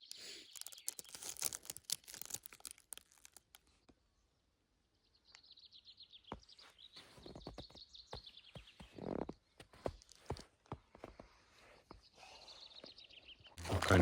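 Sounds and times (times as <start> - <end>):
footsteps on trail: 6.3 - 11.4.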